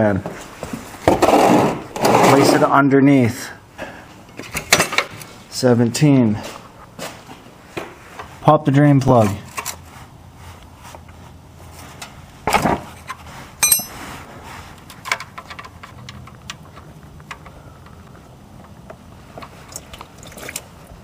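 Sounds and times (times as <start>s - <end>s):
metal tools knocking: 13.6s - 14.0s
ringing metallic clink: 13.6s - 14.0s.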